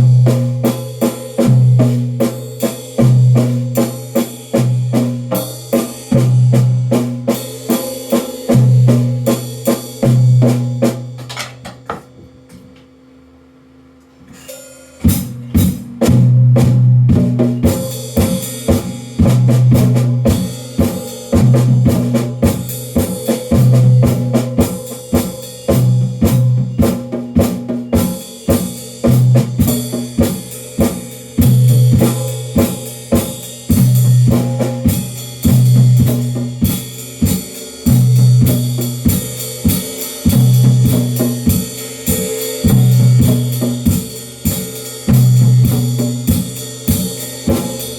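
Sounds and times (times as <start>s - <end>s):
drum kit groove: 0.0s - 13.0s, 14.3s - 47.9s
cymbals: 14.3s - 47.9s.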